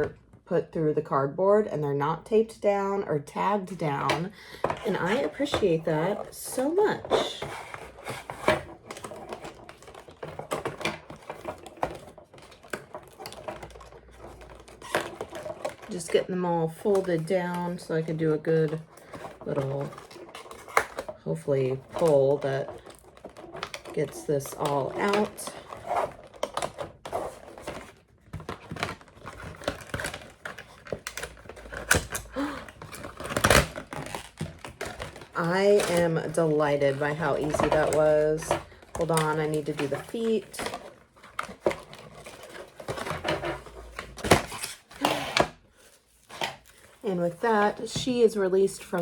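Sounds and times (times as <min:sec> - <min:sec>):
cardboard and plastic clicks and taps: 0:21.8 - 0:45.6.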